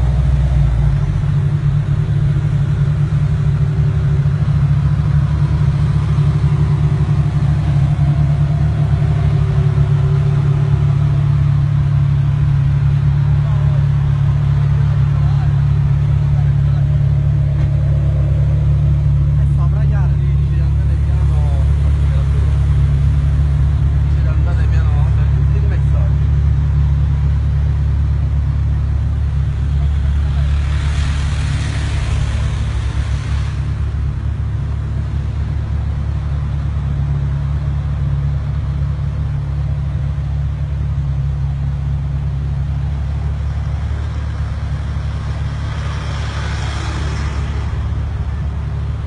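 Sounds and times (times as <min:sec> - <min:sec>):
car engines idling: 0:00.0 - 0:49.0
rushing noise: 0:29.2 - 0:35.8, 0:43.1 - 0:49.0.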